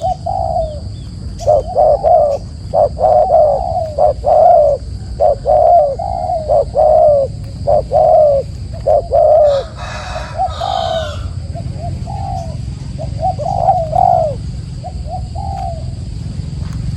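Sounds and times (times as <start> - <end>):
bird cooing: 0.0 - 16.9.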